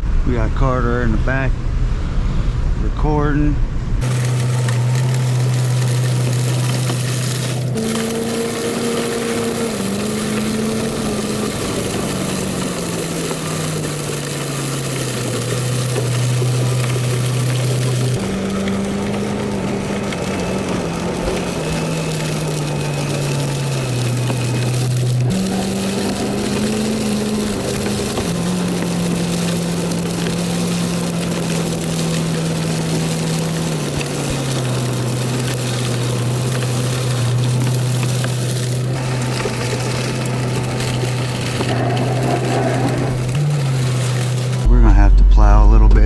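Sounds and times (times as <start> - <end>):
truck engine running: 4.0 - 46.0.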